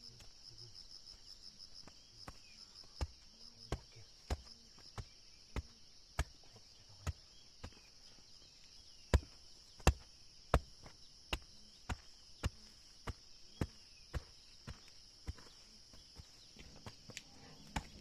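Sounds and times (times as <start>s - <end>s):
hand tool striking wood: 2.2s - 6.4s, 9.1s - 15.5s.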